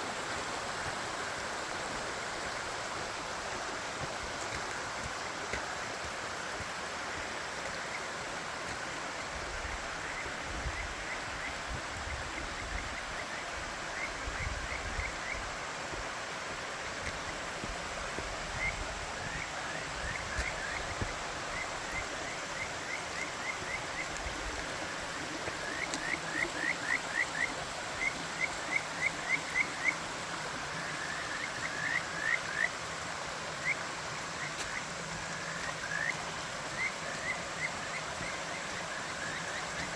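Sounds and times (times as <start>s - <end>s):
waterfall rushing: 0.0s - 39.9s
frog calling: 10.0s - 15.5s, 18.5s - 30.0s, 30.8s - 32.8s, 33.6s - 39.9s.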